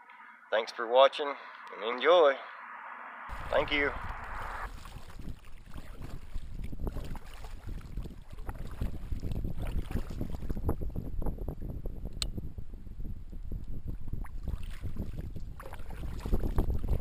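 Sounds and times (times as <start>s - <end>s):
wind buffeting microphone: 3.3s - 17.0s
water lapping against kayak: 4.4s - 11.0s, 13.8s - 17.0s.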